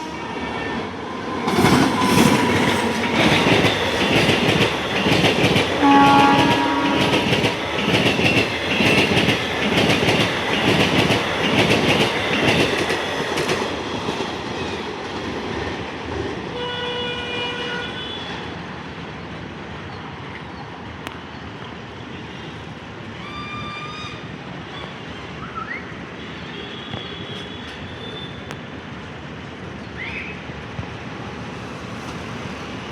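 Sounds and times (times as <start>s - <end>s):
train wheels clattering: 1.4s - 15.5s
train horn: 5.8s - 7.4s, 16.5s - 18.4s.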